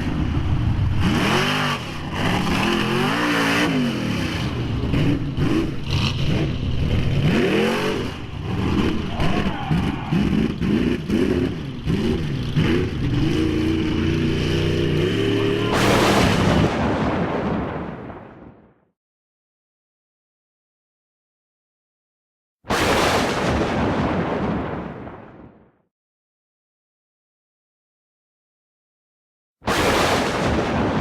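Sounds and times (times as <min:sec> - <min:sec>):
truck engine revving: 0:00.0 - 0:17.0
loud rush of noise: 0:00.0 - 0:18.6.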